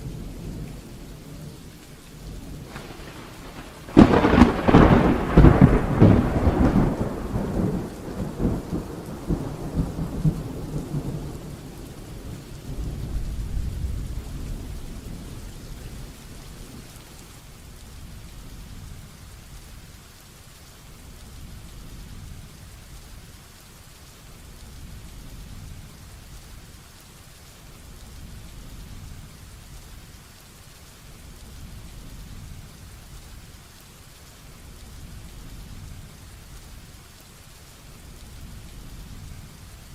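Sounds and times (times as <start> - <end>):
thunder rumbling: 0.0 - 17.3
heavy rain: 0.0 - 39.9.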